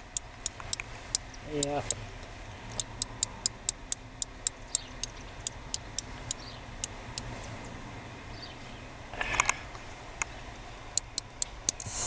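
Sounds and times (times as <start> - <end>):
bat clicking chirps: 2.7 - 6.6.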